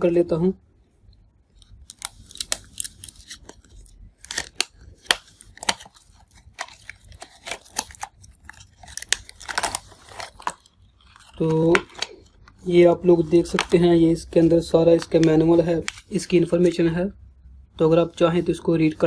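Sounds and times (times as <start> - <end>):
packaging clicks and crinkles: 1.6 - 16.8.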